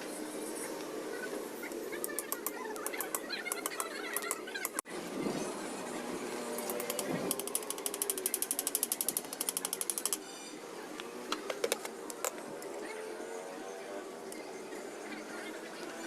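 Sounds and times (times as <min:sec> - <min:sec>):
ratchet wrench clicking: 0:06.6 - 0:10.2.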